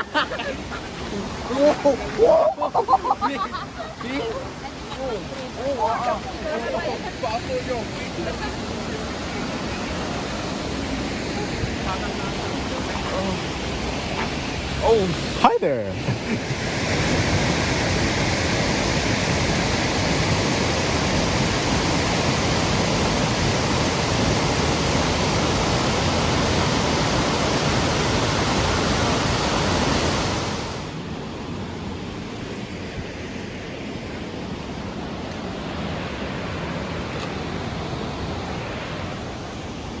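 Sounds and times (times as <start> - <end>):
waterfall rushing: 0.0 - 31.4.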